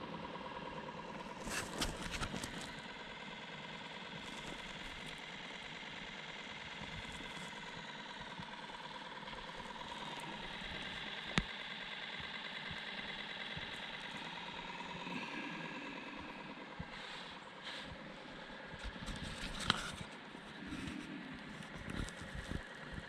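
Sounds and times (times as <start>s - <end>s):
boat motor running: 0.0s - 23.0s.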